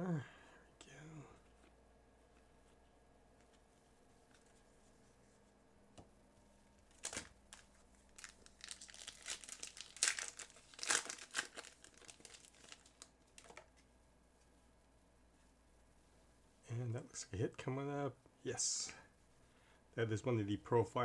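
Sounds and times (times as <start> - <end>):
wrapper crinkling in hands: 6.9 - 13.8.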